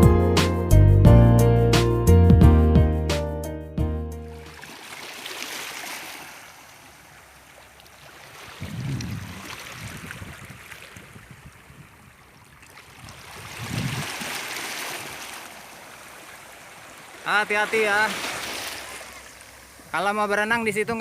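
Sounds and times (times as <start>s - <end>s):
water washing at shore: 4.3s - 20.4s
low rumble of waves: 6.0s - 21.0s.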